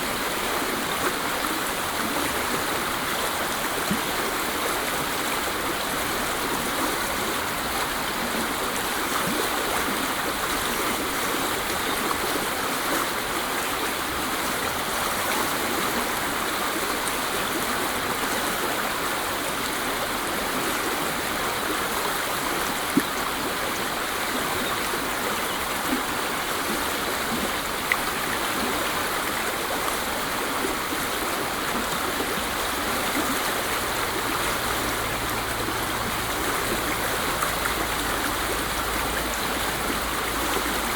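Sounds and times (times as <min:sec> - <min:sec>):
waterfall rushing: 0:13.2 - 0:40.9.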